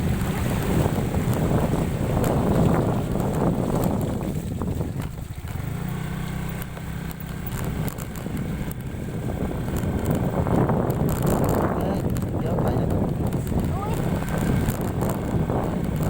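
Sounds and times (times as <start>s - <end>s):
scooter engine running: 0.0s - 16.0s
wind noise on microphone: 0.0s - 16.0s.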